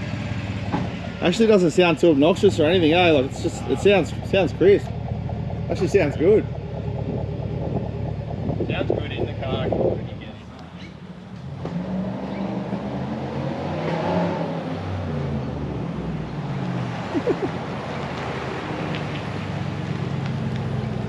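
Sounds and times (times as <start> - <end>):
loud vee-eight truck exhaust: 0.0 - 15.0.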